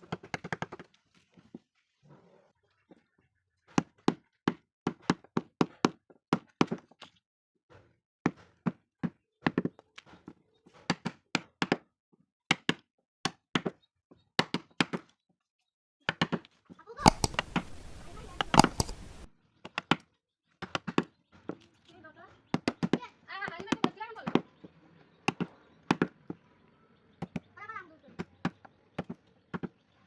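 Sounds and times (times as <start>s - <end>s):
mallet striking chisel into wood: 17.0s - 19.2s.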